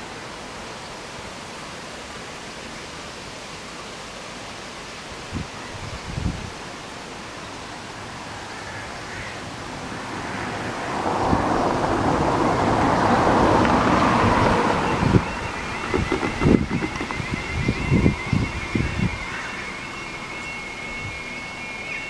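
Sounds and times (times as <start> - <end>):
wind bumps on microphone: 5.3 - 6.6, 11.0 - 19.4
road vehicle passing: 8.0 - 21.9.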